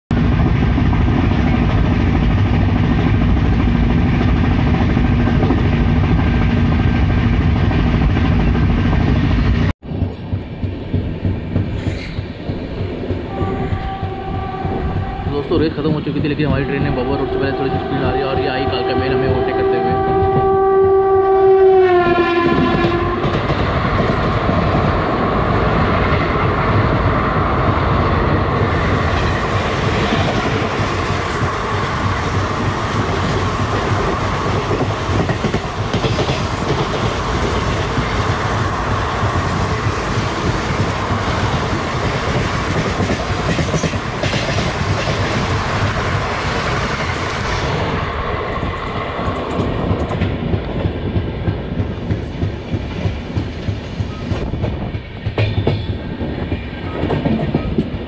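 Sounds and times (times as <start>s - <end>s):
train wheels clacking rhythmically: 0.1s - 15.1s, 22.5s - 58.0s
train coaches rushing past: 21.7s - 58.0s
train wheels clattering on rail joints: 22.4s - 47.8s, 48.6s - 58.0s.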